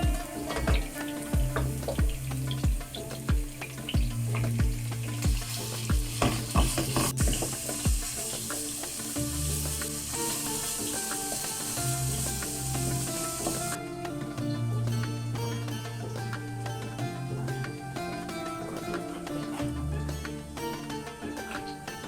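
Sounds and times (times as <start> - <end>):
food sizzling in a pan: 0.0 - 13.8
background music with beat: 0.0 - 22.0.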